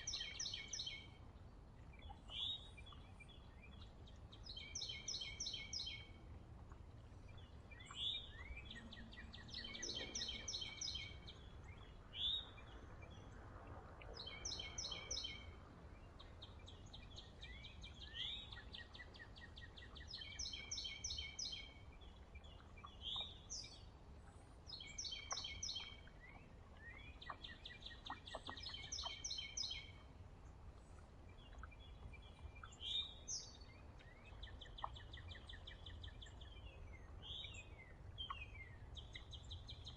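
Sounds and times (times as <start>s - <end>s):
songbirds trilling: 6.9s - 13.3s, 24.7s - 39.9s.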